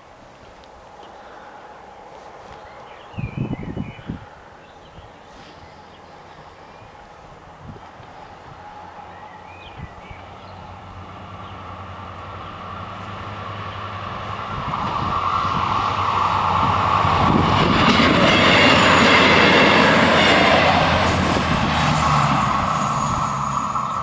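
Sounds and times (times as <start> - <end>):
diesel train passing: 4.2 - 24.0
high wheel squeal: 18.6 - 24.0.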